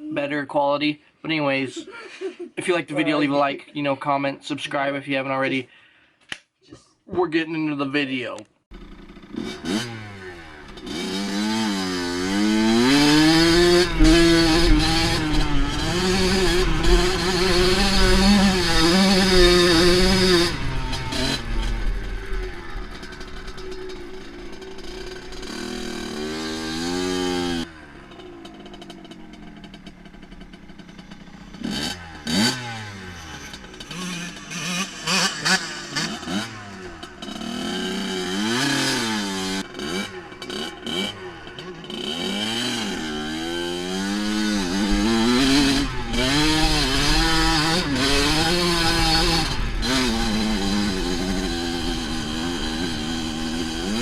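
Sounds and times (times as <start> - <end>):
dirt bike engine revving: 8.7 - 54.0.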